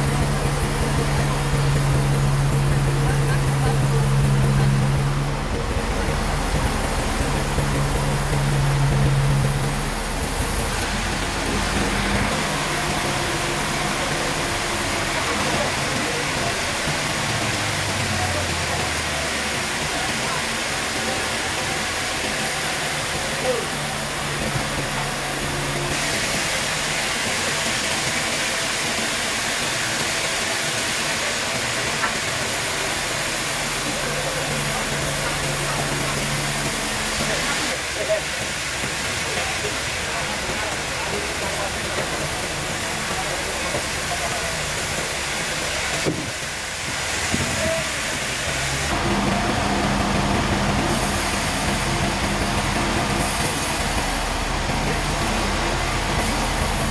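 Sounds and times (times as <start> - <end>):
low machine hum: 0.0 - 16.8, 48.6 - 56.9
sawmill machinery hiss: 0.0 - 56.9.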